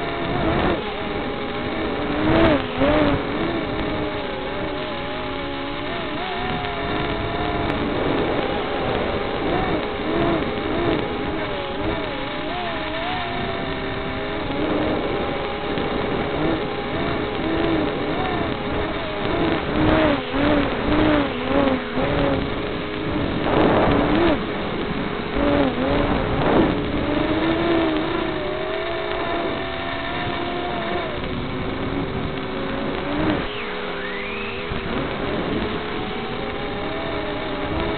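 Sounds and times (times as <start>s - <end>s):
small drone motors whining: 0.0s - 37.9s
wind noise gusts: 6.3s - 12.1s, 12.7s - 28.5s.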